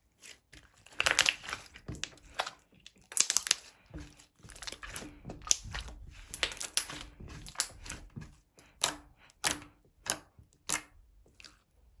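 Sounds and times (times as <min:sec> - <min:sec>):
slime clicking and popping: 0:01.0 - 0:03.7, 0:08.7 - 0:11.0.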